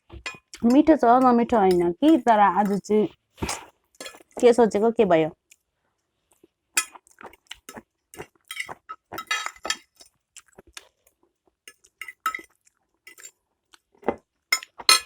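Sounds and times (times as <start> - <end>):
utensils clinking against bowl: 0.2 - 4.3, 7.6 - 10.1, 11.7 - 12.5, 13.1 - 13.3, 14.5 - 15.0.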